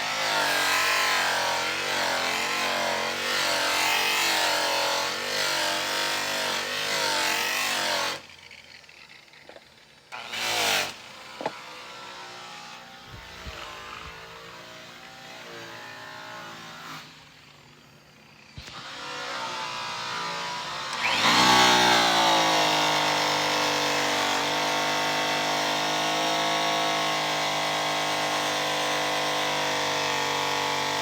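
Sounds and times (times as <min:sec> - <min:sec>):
electric polisher motor: 0:09.4 - 0:09.6, 0:10.2 - 0:16.8, 0:18.6 - 0:31.0.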